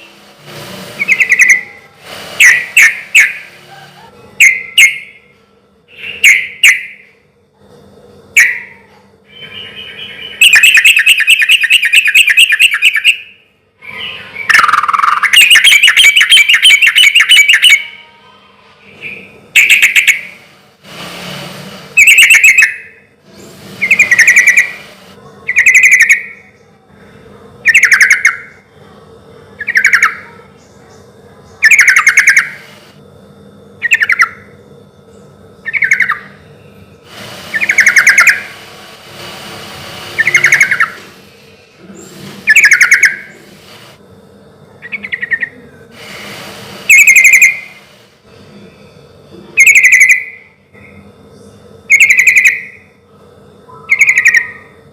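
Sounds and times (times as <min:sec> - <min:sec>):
bird singing bubbling phrases: 0:08.4 - 0:18.0, 0:23.8 - 0:26.7, 0:27.6 - 0:28.6, 0:29.6 - 0:32.6, 0:33.8 - 0:34.5, 0:35.2 - 0:36.8, 0:42.5 - 0:43.4, 0:44.8 - 0:45.8, 0:53.6 - 0:54.8.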